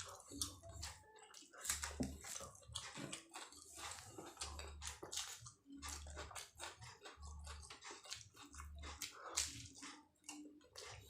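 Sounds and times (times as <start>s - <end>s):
chewing and biting pastry: 0.0s - 11.0s.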